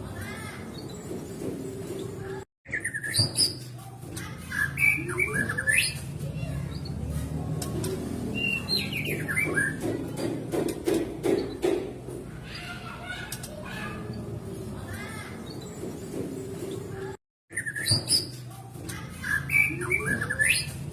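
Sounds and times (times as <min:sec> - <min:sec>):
bird singing whistled phrases: 0:08.3 - 0:09.5, 0:17.5 - 0:18.4.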